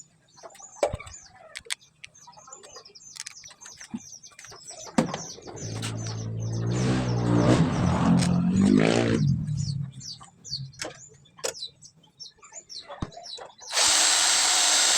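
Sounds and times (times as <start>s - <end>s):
small birds chirping: 0.0s - 14.9s
motor running: 13.7s - 14.9s.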